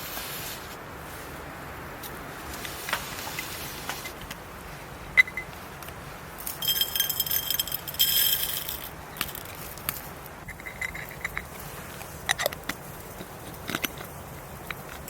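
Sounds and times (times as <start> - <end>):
hard objects clinking and rattling: 6.4 - 11.6.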